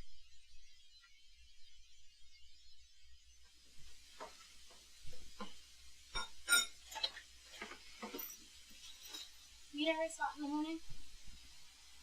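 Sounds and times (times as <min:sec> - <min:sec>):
dishes and cutlery clinking: 0:06.1 - 0:09.4.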